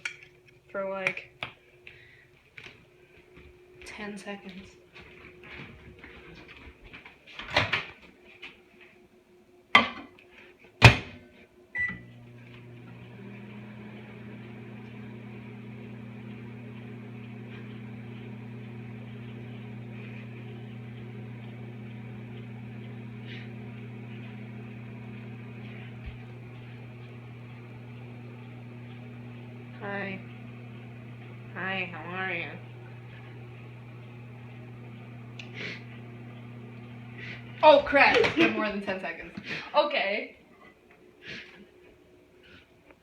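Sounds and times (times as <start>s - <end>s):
microwave oven humming: 11.7s - 39.0s.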